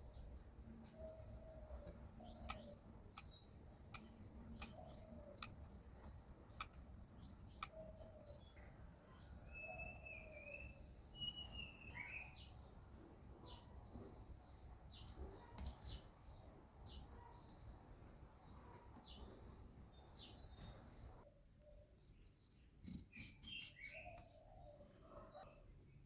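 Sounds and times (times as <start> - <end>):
faint bird chirps: 0.0 - 26.0
sharp single clicks: 2.4 - 7.8
wavering whistled bird notes: 9.4 - 12.4.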